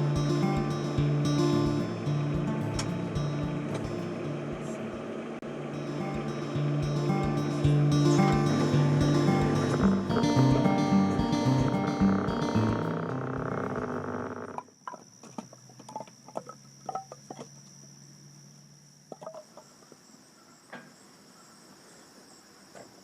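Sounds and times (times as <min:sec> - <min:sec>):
background music: 0:00.0 - 0:04.9, 0:05.7 - 0:14.2
insects buzzing: 0:00.0 - 0:23.0.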